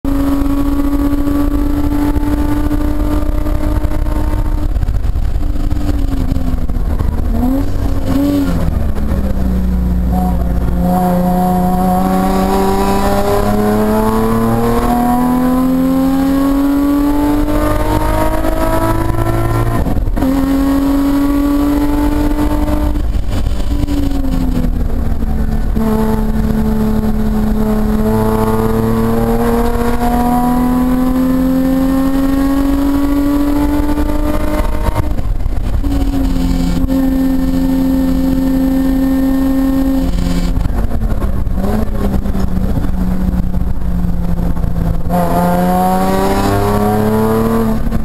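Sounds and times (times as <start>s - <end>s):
race car engine from cabin: 0.0s - 48.0s
throttle-blip downshifts: 0.1s - 48.0s.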